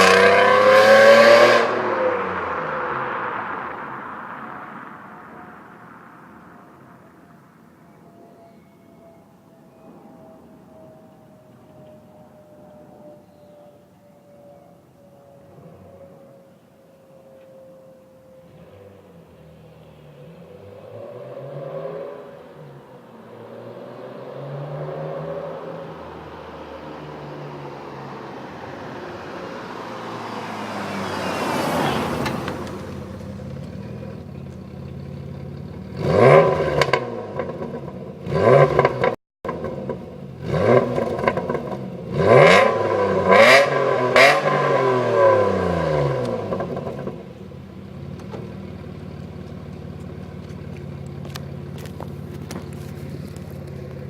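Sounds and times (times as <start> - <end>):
car engine revving past: 0.0 - 7.6, 17.2 - 34.5, 35.2 - 47.5.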